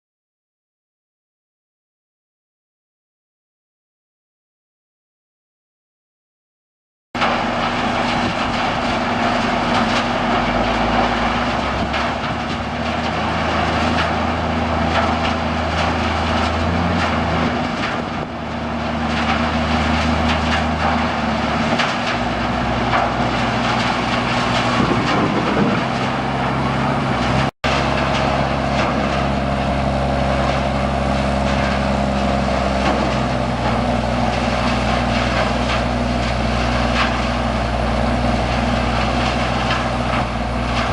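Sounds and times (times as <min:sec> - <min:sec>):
broad rushing noise: 0:07.2 - 0:40.9.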